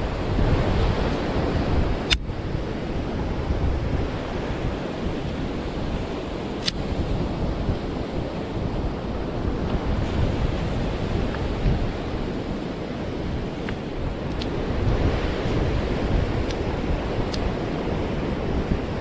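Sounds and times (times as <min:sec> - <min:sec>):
ocean surf on a beach: 0:00.0 - 0:19.0
wind buffeting microphone: 0:00.0 - 0:19.0
sharp click: 0:02.0 - 0:02.3, 0:06.6 - 0:06.8, 0:13.6 - 0:14.5.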